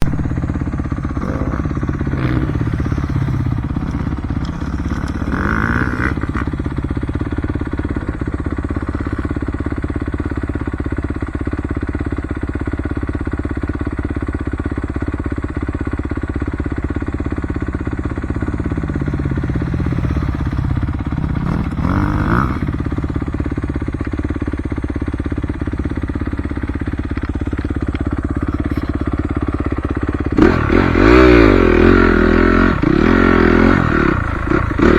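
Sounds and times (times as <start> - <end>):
motocross bike engine revving: 0.0 - 10.3, 17.5 - 24.6, 25.2 - 34.9.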